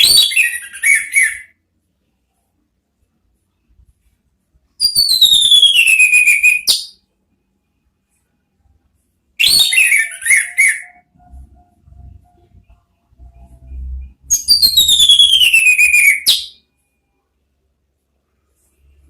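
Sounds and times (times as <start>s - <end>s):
bird whistling: 0.0s - 1.5s, 4.8s - 7.0s, 9.4s - 11.1s, 14.3s - 16.6s.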